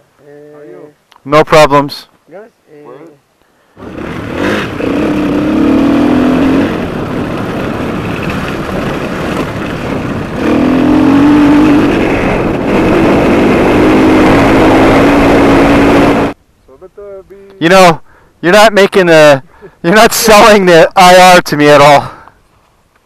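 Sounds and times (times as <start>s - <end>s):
motorcycle engine revving: 3.8s - 16.4s
wind rush on camera: 3.8s - 16.4s.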